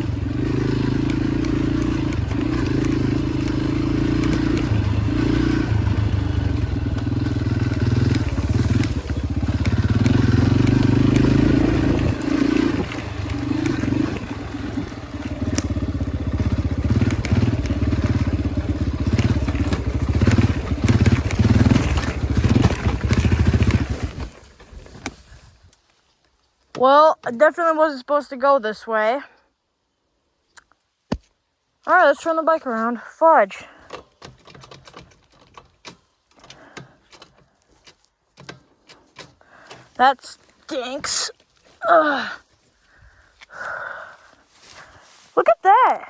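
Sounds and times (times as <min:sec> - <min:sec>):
dirt bike engine revving: 0:00.0 - 0:24.5
knocks and crunching over rough ground: 0:00.2 - 0:27.6, 0:30.6 - 0:31.4, 0:33.5 - 0:45.6.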